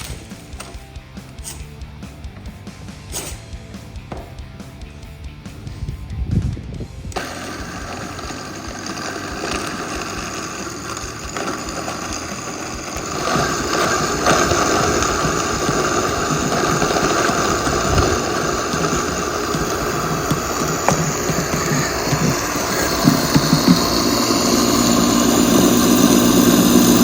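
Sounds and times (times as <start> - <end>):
blender motor grinding: 7.1 - 27.0.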